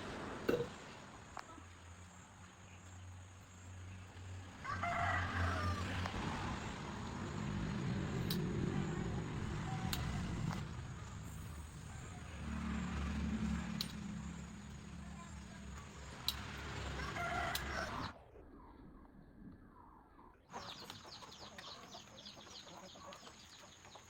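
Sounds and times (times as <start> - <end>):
engine running unevenly: 0.0 - 18.2
sharp clicks: 8.2 - 8.5, 16.2 - 16.8, 17.5 - 17.8.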